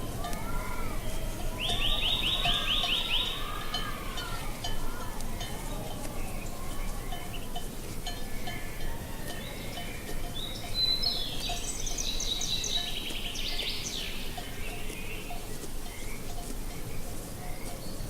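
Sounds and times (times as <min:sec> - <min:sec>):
low wind: 0:00.0 - 0:18.0
songbirds chirping: 0:00.0 - 0:18.0
bird song ending in trill: 0:01.6 - 0:03.5, 0:08.4 - 0:15.3.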